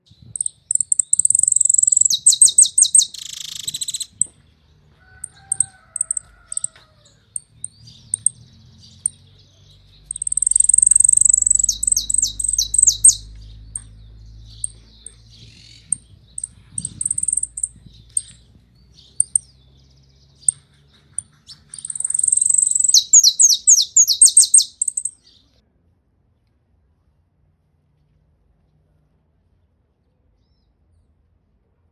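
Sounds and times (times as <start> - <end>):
finch singing: 0.1 - 25.4
short high bird chips: 0.4 - 4.4, 10.0 - 13.9, 14.5 - 18.4, 21.7 - 25.1.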